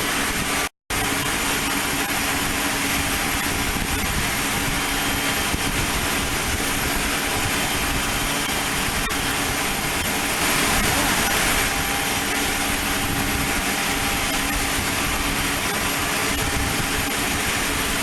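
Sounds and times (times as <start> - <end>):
aircraft engine running: 0.0 - 18.0.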